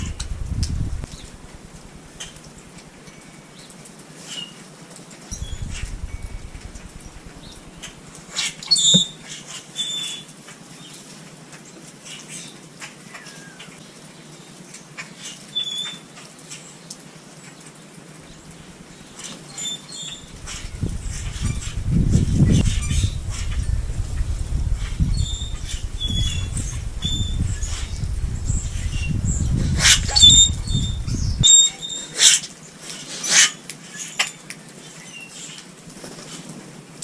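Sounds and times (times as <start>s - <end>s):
loud uneven low rumble: 0.0s - 2.1s, 5.4s - 8.3s, 20.2s - 31.5s
small birds chirping: 0.0s - 2.5s, 5.3s - 10.2s, 18.2s - 32.2s.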